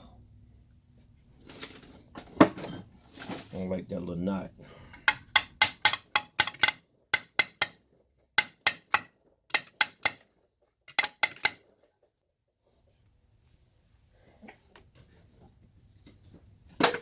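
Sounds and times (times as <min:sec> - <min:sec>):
hammer tapping on metal: 0:04.9 - 0:07.8, 0:08.4 - 0:10.2, 0:10.9 - 0:11.6.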